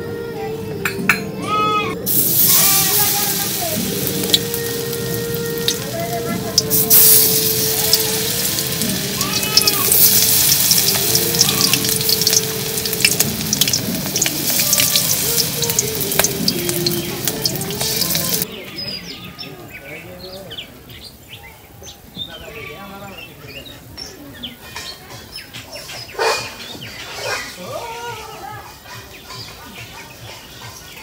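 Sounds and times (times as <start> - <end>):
vegetables sizzling in hot oil: 2.0 - 18.5.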